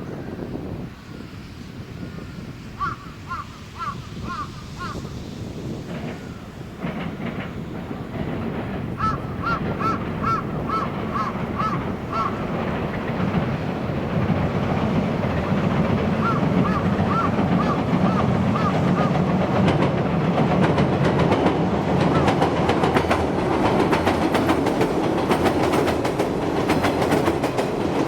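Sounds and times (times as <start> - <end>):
electric train rumbling: 0.0 - 28.0
bird short repeated calls: 9.0 - 12.5, 16.2 - 19.2.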